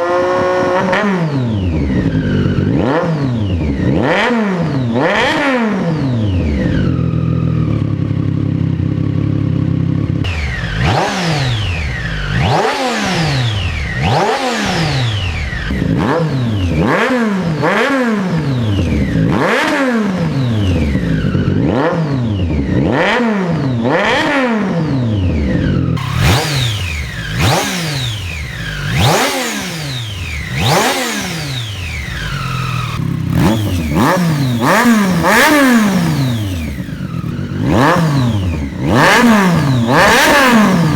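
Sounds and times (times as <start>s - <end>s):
motorcycle engine idling and revving: 0.0s - 40.9s.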